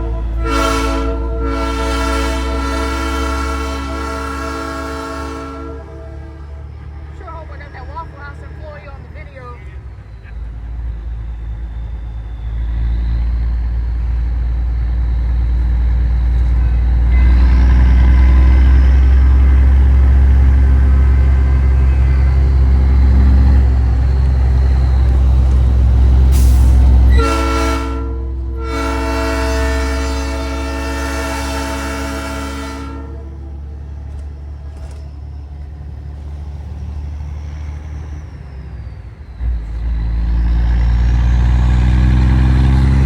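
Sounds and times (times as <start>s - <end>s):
train-style air horn chord: 0.0s - 6.6s, 16.6s - 18.6s, 27.1s - 33.5s
truck engine rumble: 0.0s - 43.0s.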